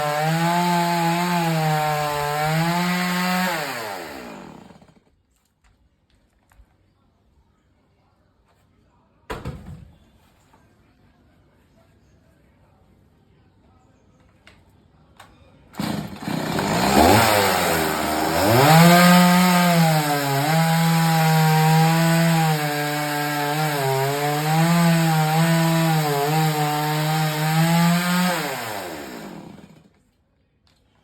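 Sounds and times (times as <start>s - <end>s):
chainsaw cutting wood: 0.0s - 5.1s, 15.8s - 29.9s.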